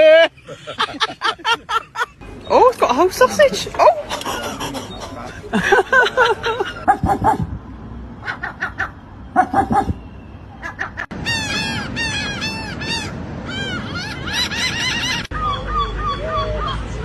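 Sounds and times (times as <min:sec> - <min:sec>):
seagulls yelping calls: 0:03.8 - 0:05.4, 0:08.2 - 0:17.0.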